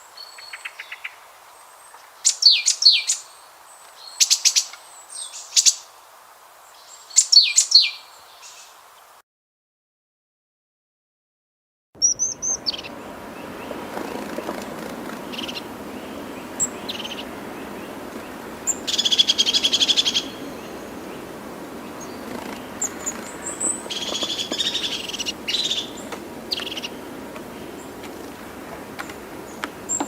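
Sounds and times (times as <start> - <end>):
steady background hiss: 0.0 - 9.2, 12.1 - 30.0
bird chirping and trilling: 2.2 - 3.4, 4.0 - 5.9, 6.8 - 8.7, 12.0 - 28.3.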